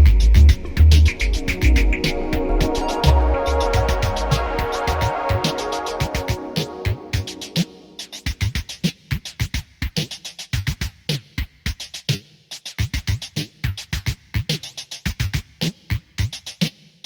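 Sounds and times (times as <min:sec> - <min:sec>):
glitchy electronic music: 0:00.0 - 0:08.3.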